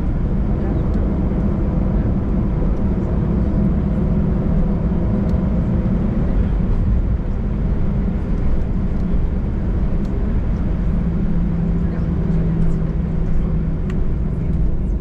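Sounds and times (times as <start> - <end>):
jet engine rumble in cabin: 0.0 - 15.0.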